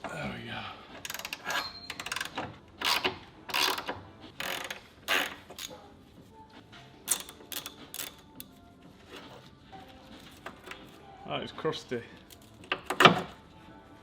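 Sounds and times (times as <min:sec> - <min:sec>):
socket ratchet clicking: 0:01.0 - 0:05.7, 0:07.0 - 0:08.5.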